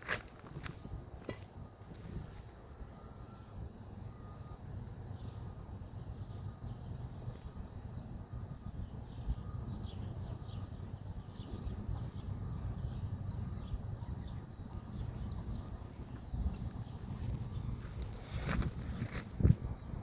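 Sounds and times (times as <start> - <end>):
small birds chirping: 3.0 - 19.5.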